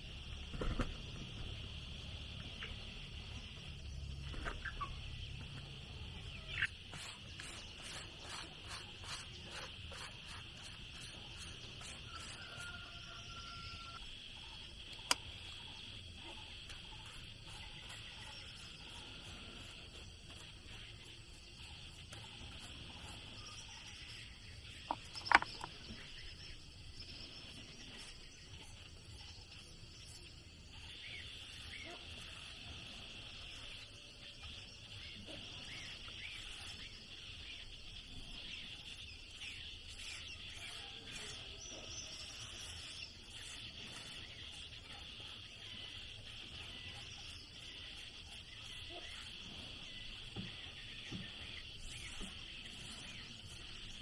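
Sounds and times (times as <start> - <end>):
insects droning: 0.0 - 54.0
faint regular clicks: 14.3 - 16.0.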